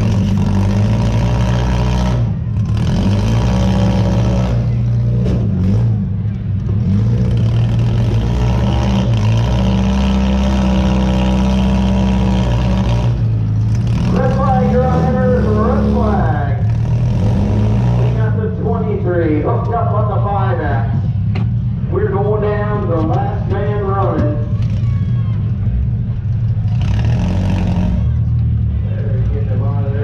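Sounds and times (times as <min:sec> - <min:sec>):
car engine droning: 0:00.0 - 0:30.0.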